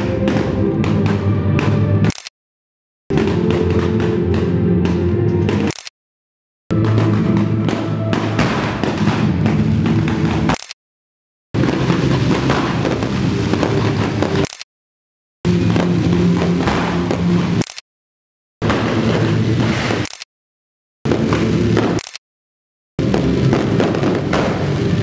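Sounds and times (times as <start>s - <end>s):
fireworks crackling and bursting: 0.0s - 1.6s, 6.7s - 10.6s, 11.6s - 14.6s, 15.5s - 17.8s, 18.6s - 20.2s, 21.1s - 22.0s, 23.0s - 25.0s
loud music: 0.0s - 2.1s, 3.1s - 5.7s, 6.7s - 10.4s, 15.5s - 17.6s.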